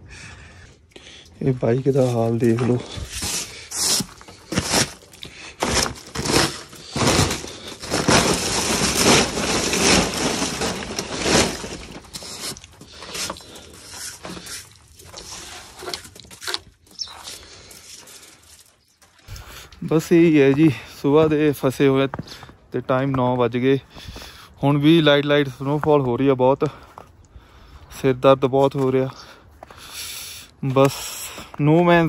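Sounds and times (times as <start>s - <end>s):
snow crunching and scraping: 1.6s - 16.0s.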